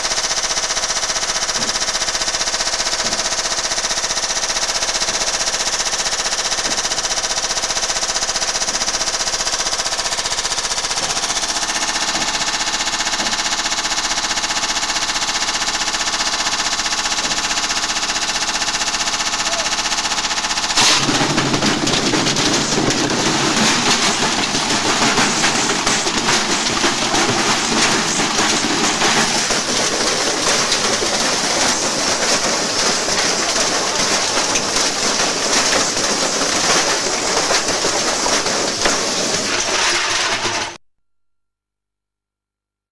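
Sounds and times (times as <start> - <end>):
unbalanced drum rattling and banging: 20.8 - 40.8.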